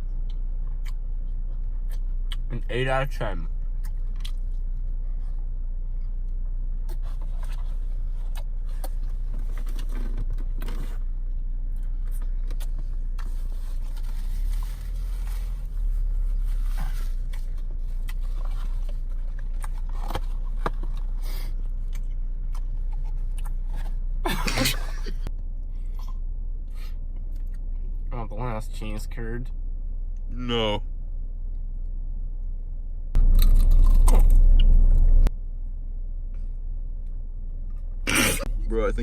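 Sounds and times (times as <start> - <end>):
car engine rumble: 0.0 - 39.0
rustling: 12.6 - 21.6.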